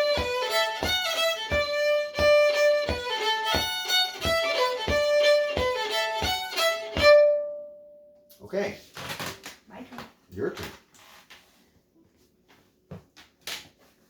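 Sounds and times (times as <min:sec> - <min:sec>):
fiddle playing a tune: 0:00.0 - 0:07.8.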